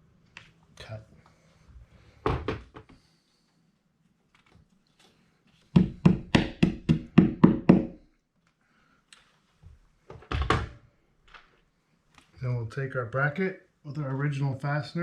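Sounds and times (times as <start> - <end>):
hammer tapping wall anchor: 5.8 - 8.0.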